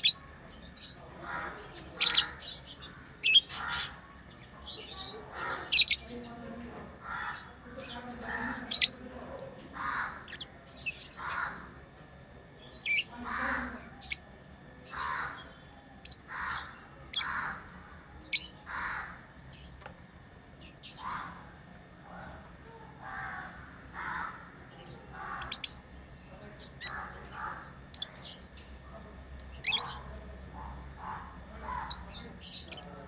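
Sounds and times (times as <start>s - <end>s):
lovebirds high chirps: 0.0s - 6.4s, 7.2s - 9.1s, 12.6s - 14.2s, 14.8s - 17.6s, 24.8s - 28.6s, 29.4s - 33.0s
lovebirds raspy calls: 0.0s - 33.0s.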